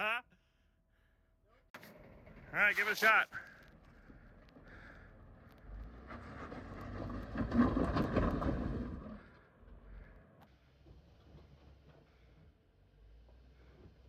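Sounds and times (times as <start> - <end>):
off-road vehicle engine revving: 3.4 - 10.4.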